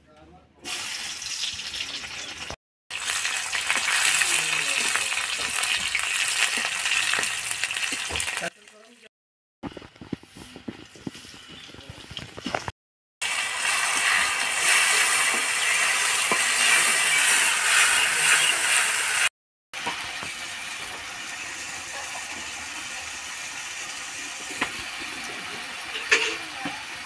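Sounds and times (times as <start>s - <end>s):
onions sizzling in oil: 0.6s - 9.0s, 13.2s - 27.0s
metal spatula scraping a pan: 13.6s - 19.3s.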